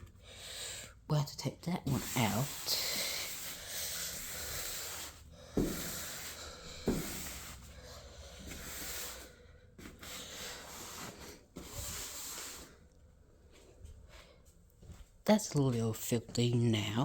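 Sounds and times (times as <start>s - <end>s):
scrubbing against a surface: 1.4s - 12.8s.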